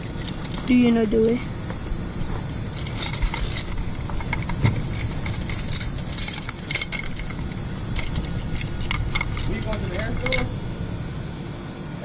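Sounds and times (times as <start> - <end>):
low rumble and hiss: 0.0 - 12.0
metal tools clinking: 2.7 - 10.6.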